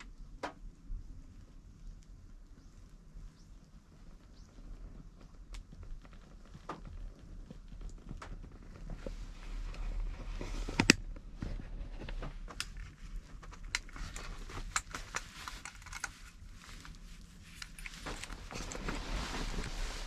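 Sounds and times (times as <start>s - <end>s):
raindrops tapping on car roof: 0.0s - 0.9s, 4.0s - 9.3s.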